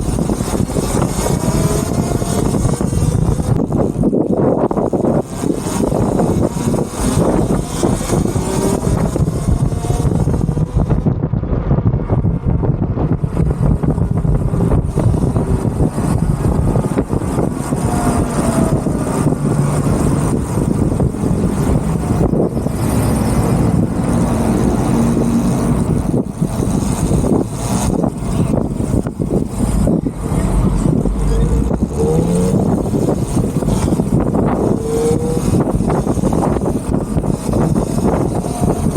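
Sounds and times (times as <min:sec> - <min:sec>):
tyre and road noise: 0:00.0 - 0:38.9
wind rushing over microphone: 0:00.0 - 0:38.9.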